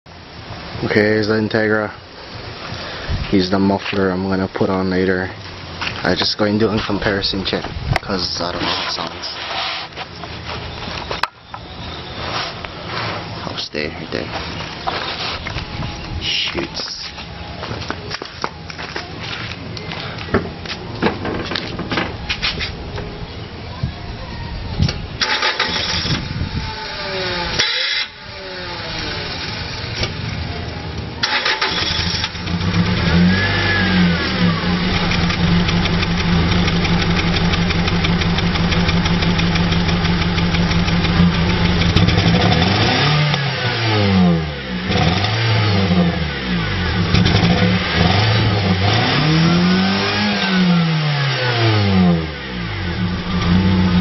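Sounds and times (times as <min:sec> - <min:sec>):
car engine idling and revving: 0:25.0 - 0:54.0.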